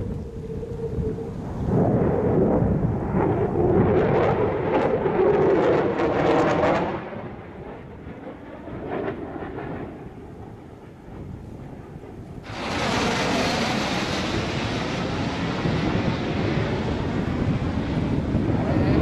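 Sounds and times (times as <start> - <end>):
fighter jet engine rumble: 0.0 - 19.0.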